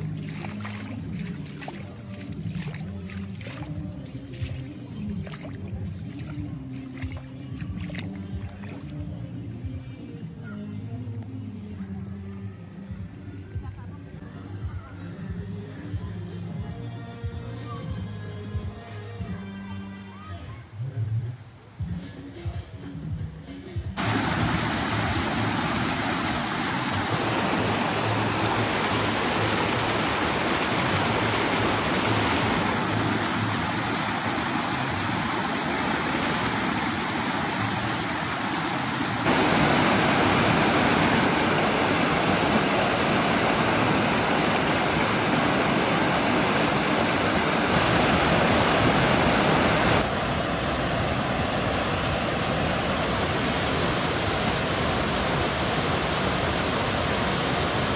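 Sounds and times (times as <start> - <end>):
stream water rushing: 0.0 - 9.6, 24.0 - 57.9.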